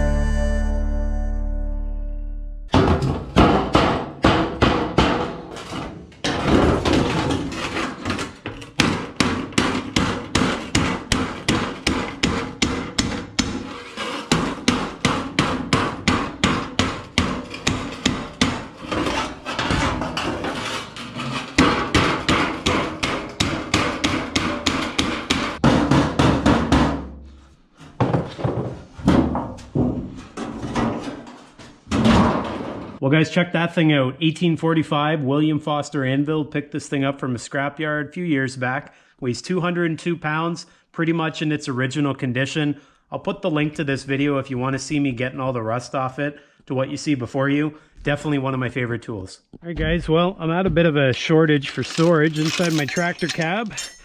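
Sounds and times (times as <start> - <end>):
hammer striking metal: 2.7 - 7.0, 8.7 - 19.0, 21.5 - 27.2, 51.8 - 54.0.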